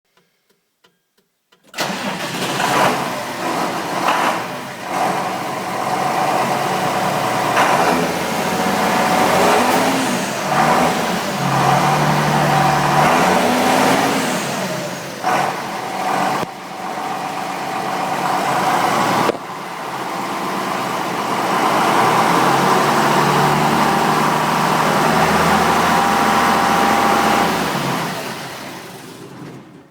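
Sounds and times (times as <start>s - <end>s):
tractor diesel engine revving: 1.8s - 29.9s
high turbo whistle: 21.7s - 28.4s.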